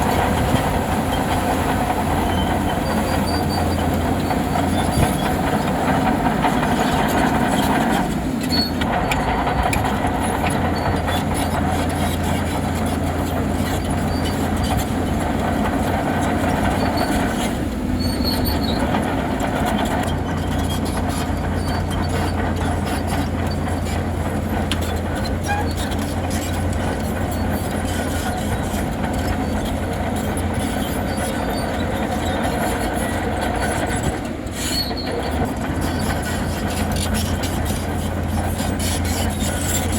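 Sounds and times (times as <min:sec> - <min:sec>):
bulldozer diesel engine running: 0:00.0 - 0:39.9
metallic clatter of steel tracks: 0:00.0 - 0:39.9.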